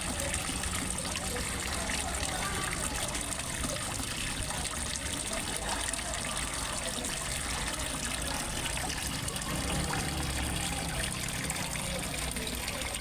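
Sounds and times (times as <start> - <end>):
small waterfall splashing into a pond: 0.0 - 13.0.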